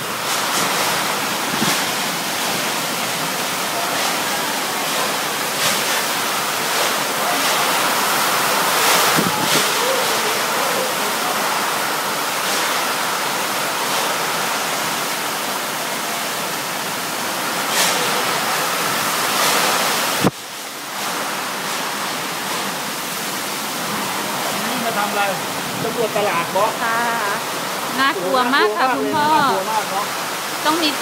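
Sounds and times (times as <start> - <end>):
strong wind and heavy rain: 0.0 - 31.0
wind buffeting microphone: 9.0 - 9.7.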